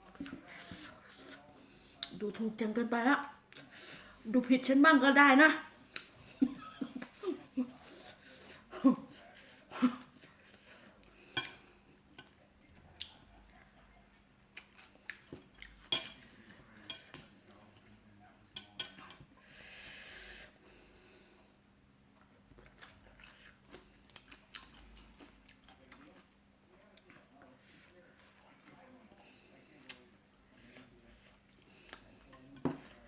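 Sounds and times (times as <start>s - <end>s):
quiet chewing: 0.0s - 2.2s, 5.9s - 19.3s, 22.1s - 33.0s
utensils clinking on dishes: 15.8s - 17.2s.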